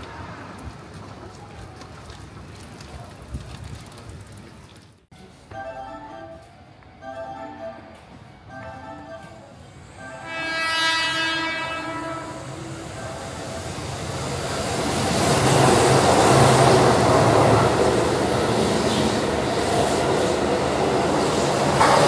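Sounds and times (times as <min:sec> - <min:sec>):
train running noise: 0:06.4 - 0:22.0
electric train horn blast: 0:09.9 - 0:13.0
wheels clacking on rails: 0:13.0 - 0:22.0.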